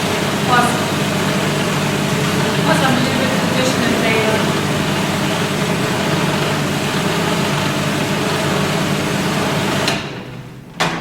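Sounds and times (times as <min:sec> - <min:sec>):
food processor grinding: 0:00.0 - 0:10.2.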